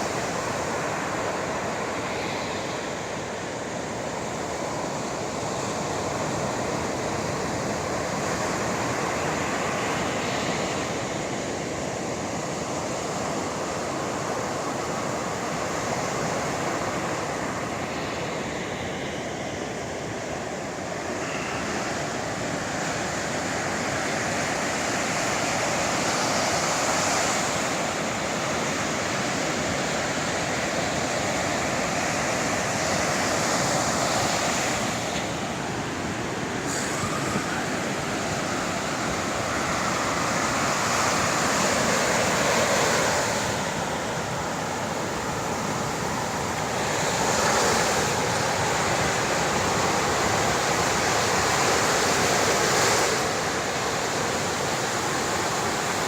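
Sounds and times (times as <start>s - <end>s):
sea waves washing on shore: 0.0s - 56.0s.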